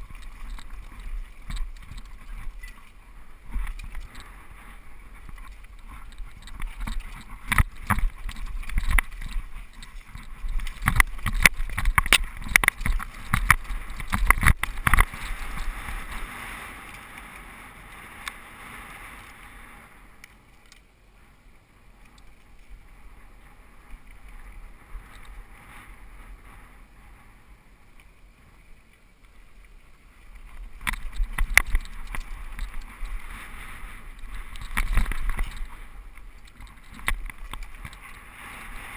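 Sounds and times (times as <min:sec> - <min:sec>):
bike rattling and knocking: 0:00.0 - 0:16.3, 0:30.7 - 0:38.3
wind: 0:00.0 - 0:38.9.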